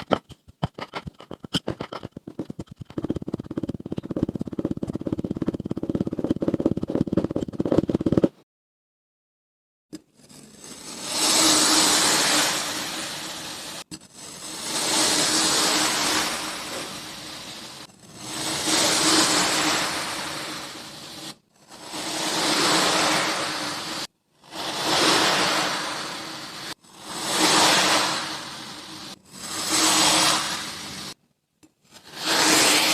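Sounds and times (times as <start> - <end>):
sand being cut and crushed: 10.2 - 31.2, 31.9 - 32.9.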